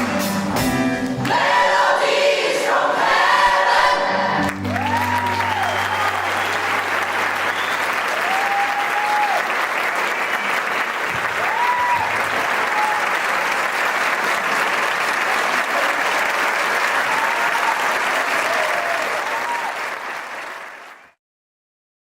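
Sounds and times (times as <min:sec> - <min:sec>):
audience applauding: 0:04.4 - 0:21.2
whistles and cheers: 0:04.6 - 0:09.7, 0:11.4 - 0:13.2, 0:16.9 - 0:21.2.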